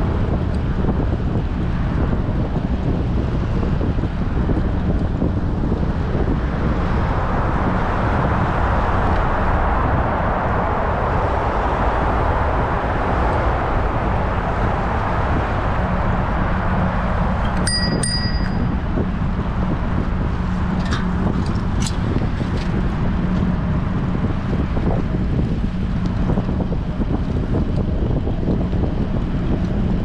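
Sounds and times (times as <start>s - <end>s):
wind on microphone: 0.0s - 30.0s
bicycle bell ringing: 17.5s - 18.8s.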